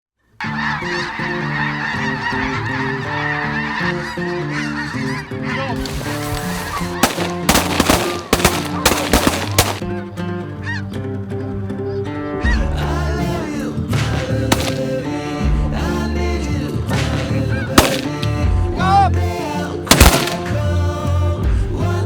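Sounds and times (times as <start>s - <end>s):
geese honking: 0.4s - 15.4s, 16.9s - 21.1s
shotgun shots: 5.9s - 10.0s, 14.5s - 15.0s, 17.7s - 18.5s, 19.9s - 20.7s.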